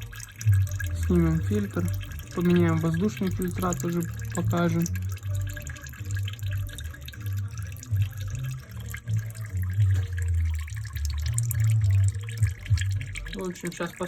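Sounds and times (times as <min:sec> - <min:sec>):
dripping and splashing: 0:00.0 - 0:14.0
oil pouring into a pan: 0:00.0 - 0:14.0.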